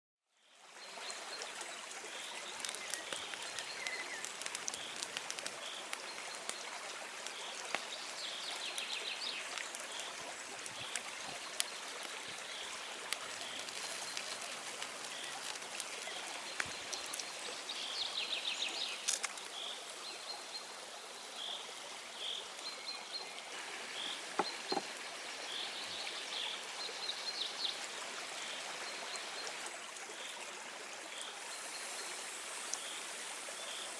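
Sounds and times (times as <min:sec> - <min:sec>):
steady rushing hiss: 0:02.2 - 0:19.7, 0:31.2 - 0:33.9
small clicks: 0:19.0 - 0:19.6.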